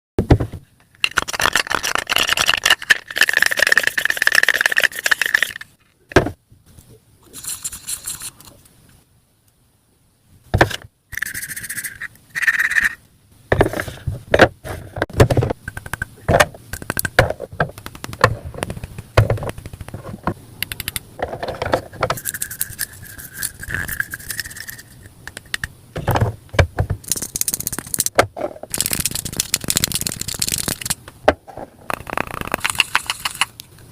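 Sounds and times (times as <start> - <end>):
plastic toy pieces clicking and clattering: 0.9 - 5.8, 27.0 - 31.0, 31.9 - 33.6.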